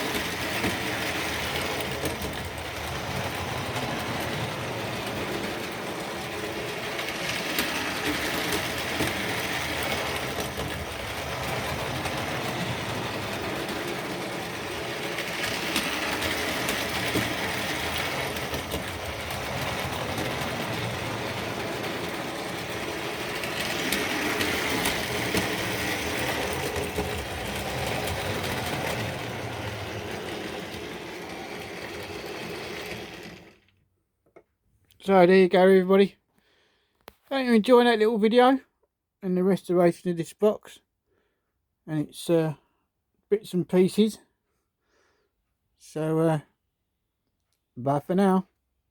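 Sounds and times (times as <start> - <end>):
model train whirr and rattle: 0.0 - 34.4.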